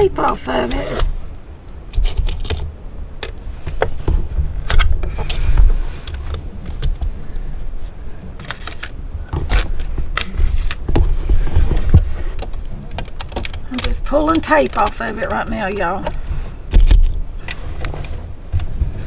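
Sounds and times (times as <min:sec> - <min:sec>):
handling clicks and knocks: 0:08.4 - 0:19.0.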